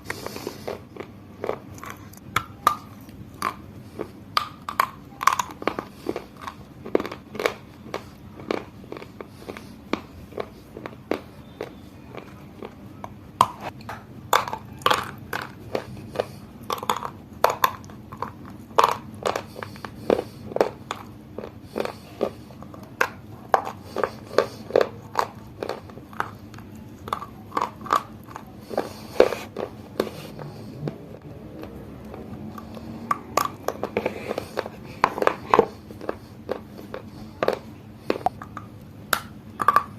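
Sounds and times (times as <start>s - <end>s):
person chewing crunchy snack: 0.0s - 39.9s.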